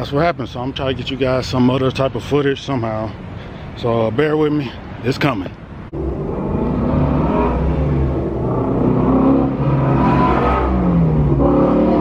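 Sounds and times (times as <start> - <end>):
car engine revving: 5.9 - 12.0.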